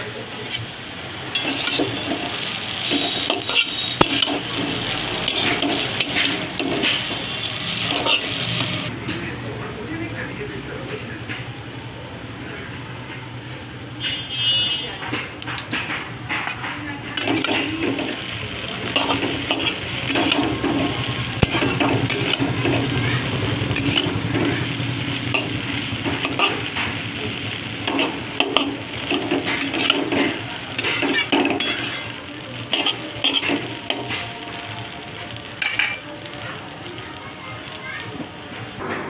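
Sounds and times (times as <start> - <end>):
food sizzling in a pan: 0.0 - 8.9, 16.4 - 38.8
spatula scraping a pan: 1.3 - 8.7, 27.8 - 34.2.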